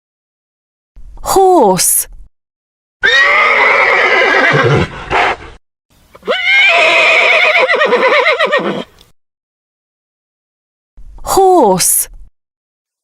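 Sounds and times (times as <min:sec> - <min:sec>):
horse neighing: 0:03.0 - 0:05.4, 0:06.2 - 0:09.0.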